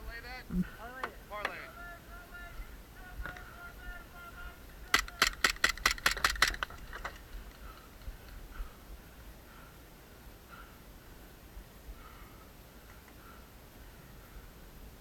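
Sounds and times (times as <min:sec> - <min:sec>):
airsoft gun shots: 0:04.9 - 0:07.0.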